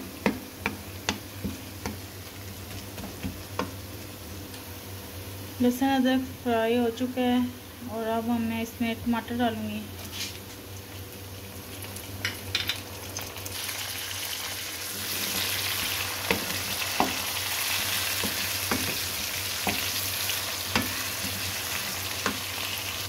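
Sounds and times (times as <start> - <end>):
food sizzling in hot oil: 10.0 - 23.0
spatula knocking and scraping pot: 16.2 - 17.3, 18.2 - 20.0, 20.7 - 21.5, 22.2 - 22.5.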